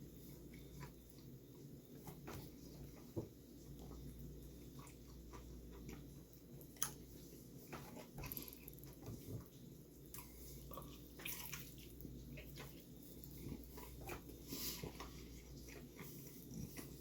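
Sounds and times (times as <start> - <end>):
person chewing and lip-smacking: 8.2 - 9.0.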